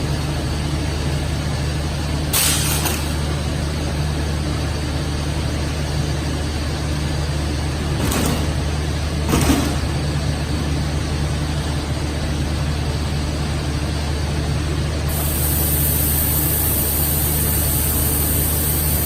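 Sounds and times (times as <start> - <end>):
machine drone with low hum: 0.0 - 19.0
high hiss: 15.1 - 19.0.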